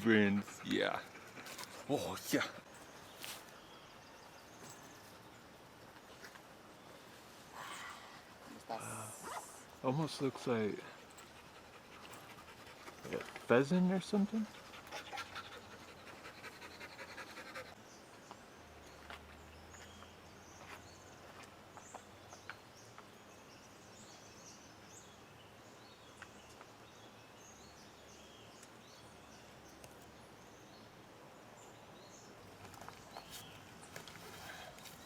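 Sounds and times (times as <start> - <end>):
dog panting: 0.0 - 2.7, 10.9 - 13.5, 14.4 - 17.8.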